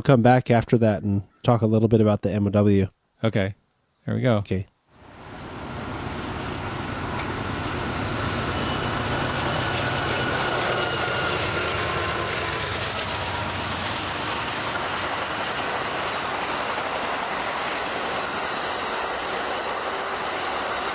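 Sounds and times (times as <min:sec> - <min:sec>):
model train rolling on track: 0:05.2 - 0:20.9.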